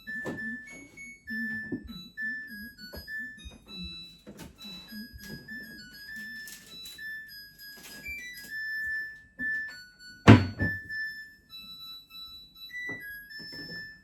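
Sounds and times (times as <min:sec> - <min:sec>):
background piano music: 0:00.0 - 0:14.0.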